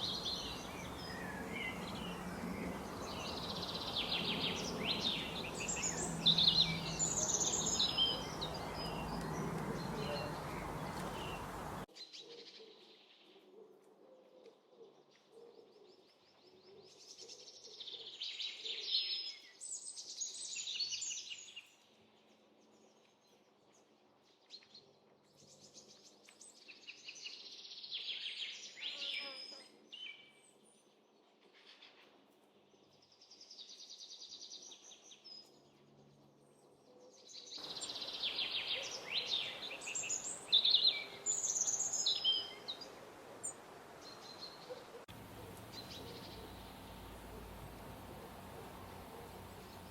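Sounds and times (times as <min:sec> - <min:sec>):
small birds chirping: 0:00.0 - 0:11.9, 0:33.0 - 0:49.9.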